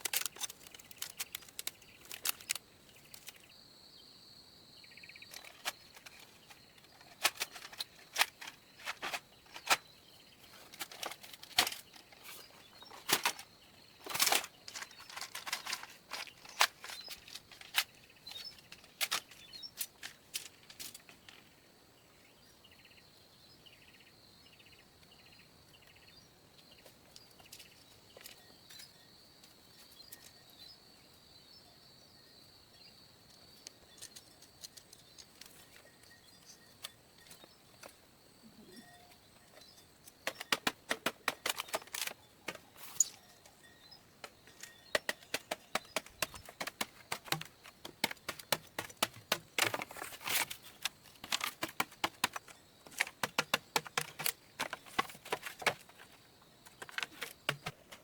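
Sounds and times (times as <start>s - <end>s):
bird chirps: 0.0s - 19.8s, 21.2s - 58.0s
sharp taps from hand work: 44.6s - 50.0s, 51.2s - 55.8s.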